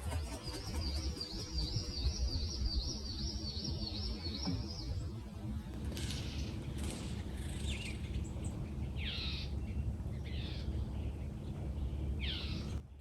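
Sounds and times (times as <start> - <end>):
low background rumble: 0.0 - 13.0
blue jay harsh calls: 7.3 - 10.8, 12.2 - 12.7.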